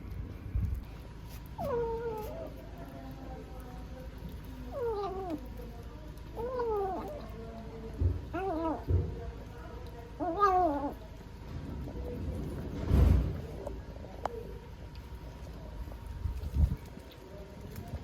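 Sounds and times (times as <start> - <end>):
cat meowing: 10.2 - 11.0.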